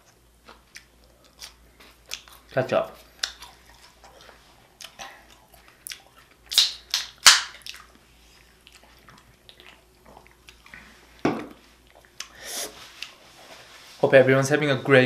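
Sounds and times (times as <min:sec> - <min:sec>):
faint chewing: 0:00.0 - 0:13.7
food crackling: 0:00.0 - 0:13.8.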